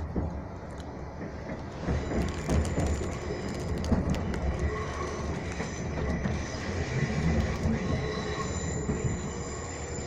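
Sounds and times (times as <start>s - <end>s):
train wheels rumbling: 0.0s - 10.0s
high-pitched wheel squeal: 7.8s - 10.0s.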